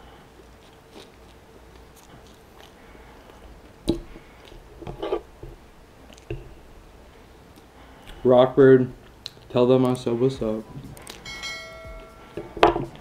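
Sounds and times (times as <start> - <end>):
person chewing: 0.3 - 8.2, 9.0 - 9.5, 10.9 - 11.2.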